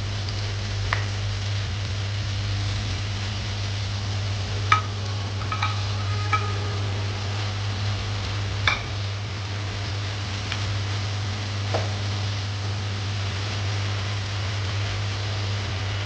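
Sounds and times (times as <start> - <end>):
low hum and hiss: 0.0 - 16.0
metal utensil clinking on pan: 4.7 - 6.5, 8.7 - 9.0.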